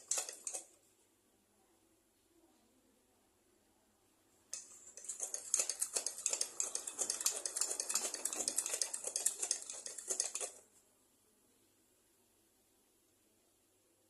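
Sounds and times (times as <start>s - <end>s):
metallic clinking and rattling: 4.6s - 10.6s.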